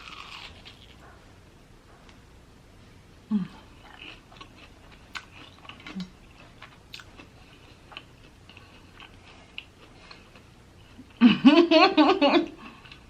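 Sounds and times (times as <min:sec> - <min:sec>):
chewing crunches: 0:00.0 - 0:01.1, 0:03.6 - 0:10.5.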